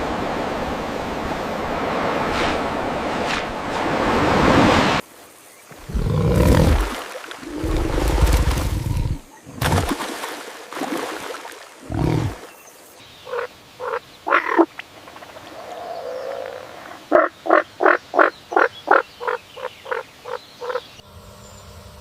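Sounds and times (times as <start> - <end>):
frog croaking: 13.2 - 14.7, 16.3 - 20.8.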